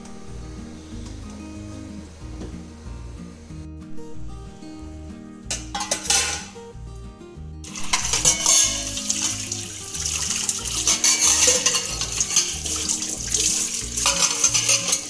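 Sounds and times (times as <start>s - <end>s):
background music with bass line: 0.0s - 15.0s
tap water running into sink: 7.7s - 15.0s.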